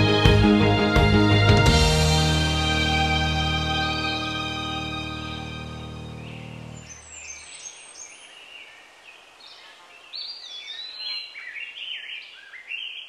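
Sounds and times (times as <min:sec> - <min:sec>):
music track: 0:00.0 - 0:07.0
birds singing: 0:05.4 - 0:13.0.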